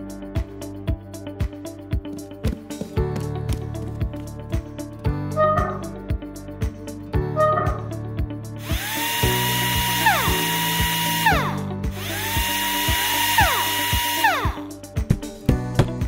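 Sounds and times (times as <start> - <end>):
background music with beat: 0.0 - 16.0
toy drill whirring: 8.6 - 14.7.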